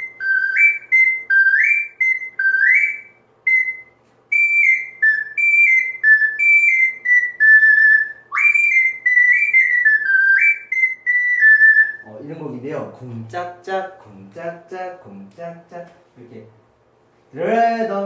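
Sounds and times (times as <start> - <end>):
ocarina playing high notes: 0.0 - 12.2.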